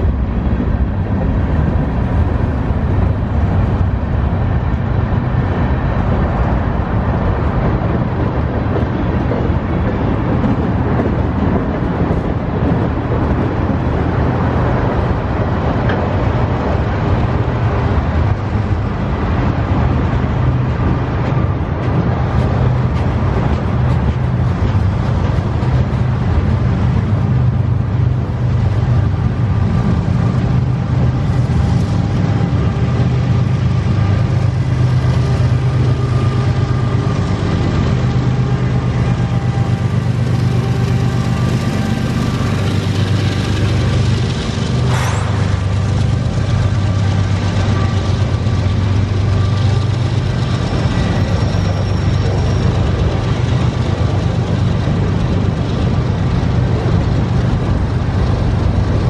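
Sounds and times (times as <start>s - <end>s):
diesel locomotive engine drone: 0.0s - 59.0s
train wheels clattering on rails: 0.0s - 59.0s.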